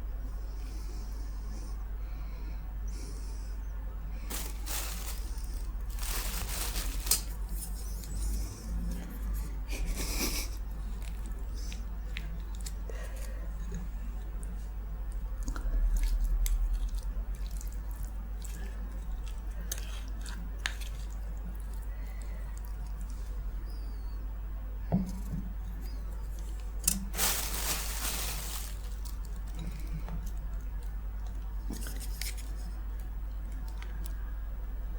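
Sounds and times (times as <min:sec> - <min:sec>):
low electrical hum: 0:00.0 - 0:34.9
wet chewing and mouth smacks: 0:10.8 - 0:23.4.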